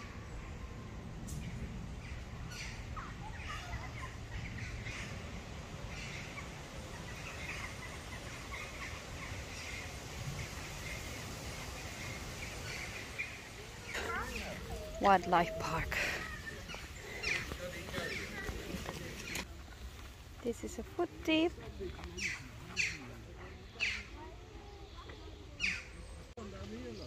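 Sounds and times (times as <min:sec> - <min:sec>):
steady low rumble: 0:00.0 - 0:20.9
birds chirping and twittering: 0:00.0 - 0:27.0.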